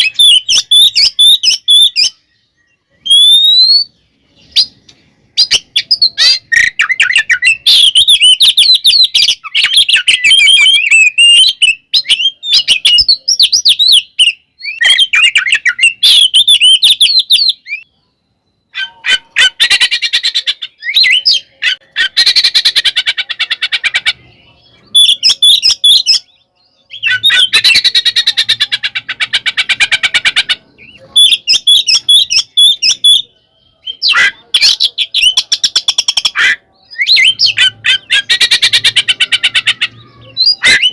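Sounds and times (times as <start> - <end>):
bird singing whistled phrases: 0.0 - 4.8, 5.4 - 22.8, 24.4 - 28.8, 30.8 - 40.9
bird harsh chattering rattle: 18.7 - 24.2, 27.0 - 33.2, 34.0 - 40.9.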